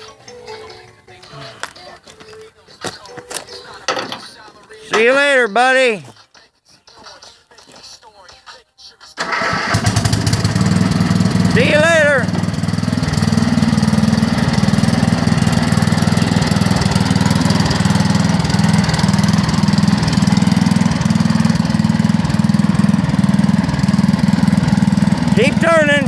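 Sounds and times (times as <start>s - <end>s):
tractor engine chugging: 9.2s - 26.0s.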